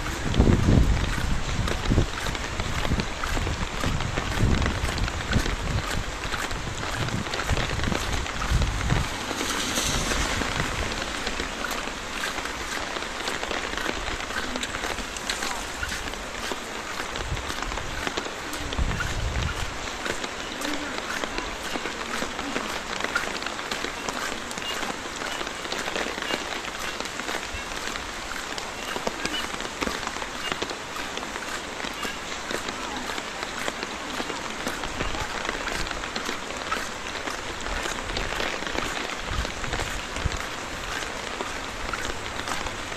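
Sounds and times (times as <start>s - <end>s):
patter of raindrops: 0.0s - 42.9s
rain falling on street and foliage: 0.0s - 42.9s.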